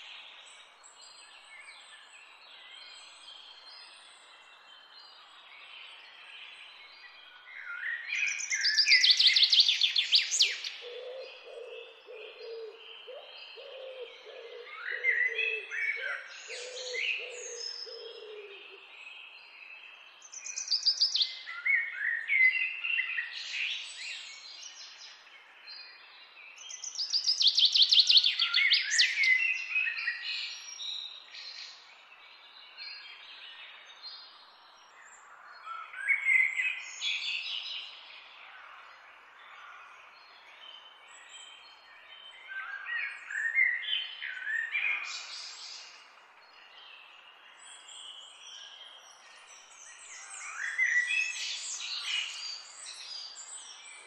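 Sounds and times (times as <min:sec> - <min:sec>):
songbirds trilling: 0:08.2 - 0:18.9.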